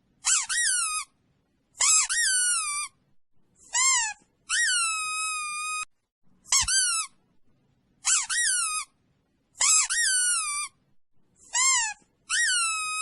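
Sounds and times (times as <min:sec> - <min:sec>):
high-pitched squeaky call: 0:00.2 - 0:01.2, 0:01.8 - 0:03.0, 0:03.6 - 0:05.9, 0:06.5 - 0:07.2, 0:08.0 - 0:09.0, 0:09.6 - 0:10.8, 0:11.4 - 0:13.0.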